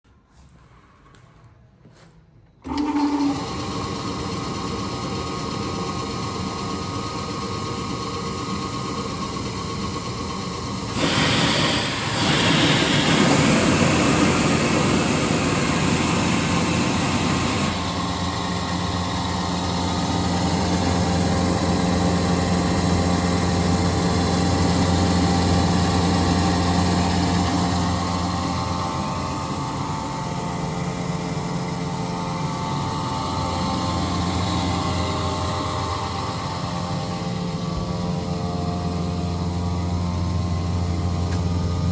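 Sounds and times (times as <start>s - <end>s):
air compressor humming: 1.9s - 41.9s
loud air hiss: 10.9s - 21.2s.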